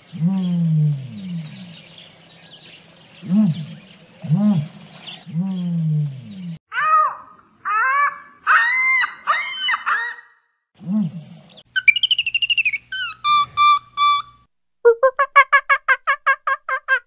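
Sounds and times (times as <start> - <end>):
high chirping animal calls: 3.2 - 10.4, 11.5 - 14.4
fast trill of chirps: 11.8 - 14.3.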